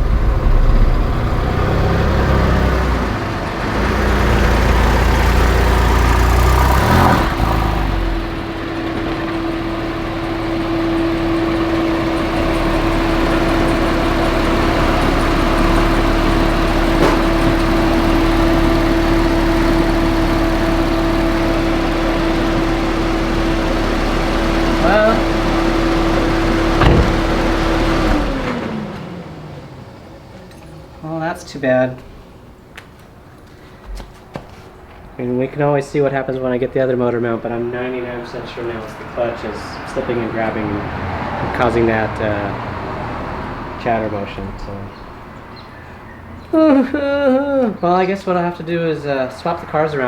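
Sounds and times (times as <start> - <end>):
car engine running: 0.0 - 30.9.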